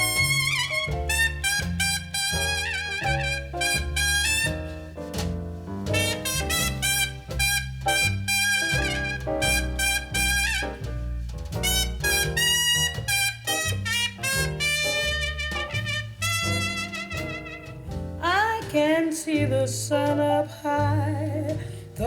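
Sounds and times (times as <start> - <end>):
brass solo with vibrato: 0.0 - 4.9, 6.0 - 10.8, 11.6 - 17.9
walking bass: 0.0 - 22.0.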